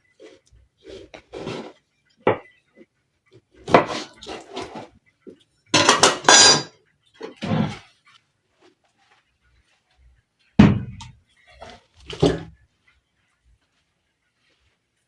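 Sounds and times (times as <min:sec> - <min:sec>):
metal utensils clattering: 0:05.8 - 0:06.7.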